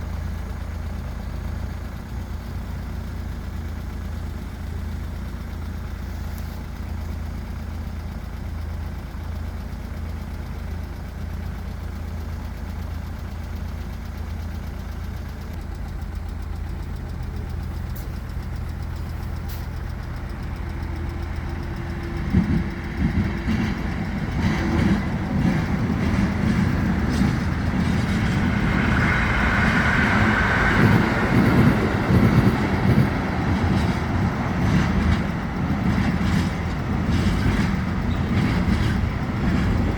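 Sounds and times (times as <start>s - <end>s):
vehicle engine idling: 0.0s - 39.9s
train rumbling past: 15.6s - 39.9s
train wheel knocks: 21.8s - 29.1s, 30.8s - 39.9s.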